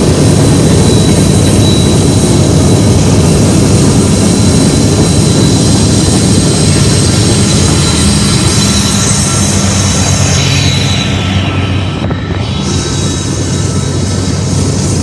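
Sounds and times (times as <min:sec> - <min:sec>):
train wheels rumbling on rail: 0:00.0 - 0:15.0
thin high tone: 0:04.5 - 0:14.9.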